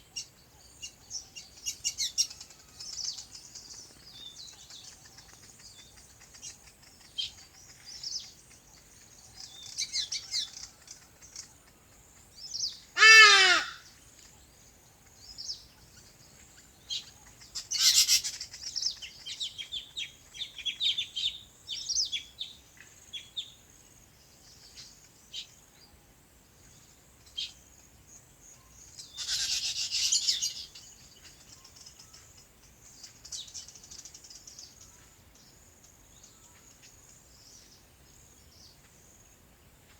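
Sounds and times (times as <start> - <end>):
small birds chirping: 0.0 - 39.9
loud harsh bird call: 12.9 - 13.9.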